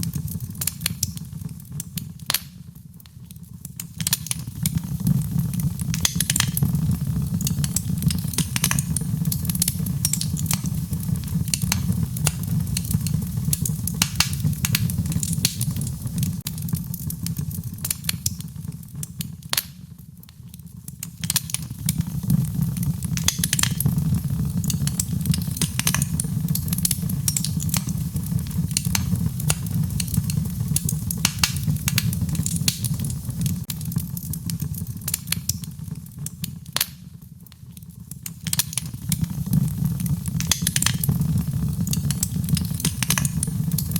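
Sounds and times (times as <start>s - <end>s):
wood fire crackling and popping: 0.0s - 43.9s.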